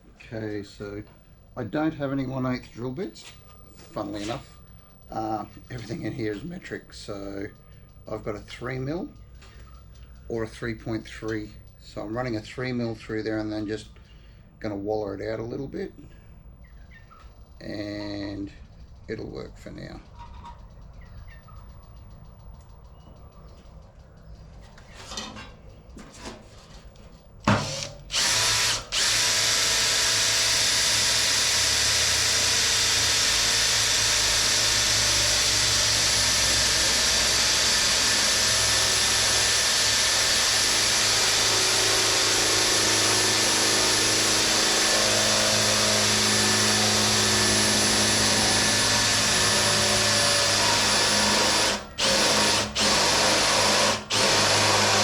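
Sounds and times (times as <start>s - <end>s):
electric drill drilling sheet steel: 27.5s - 55.0s.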